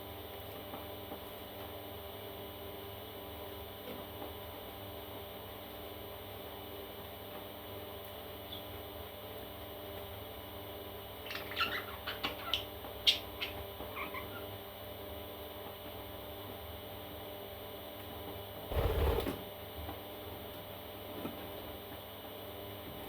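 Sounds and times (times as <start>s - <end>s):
steady electrical hum: 0.0s - 23.0s
parrot chicks chirping: 11.2s - 14.6s.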